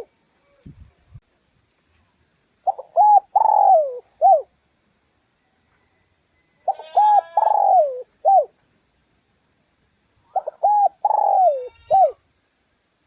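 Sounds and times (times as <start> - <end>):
dove cooing: 2.6 - 4.5, 6.6 - 8.5, 10.3 - 12.2.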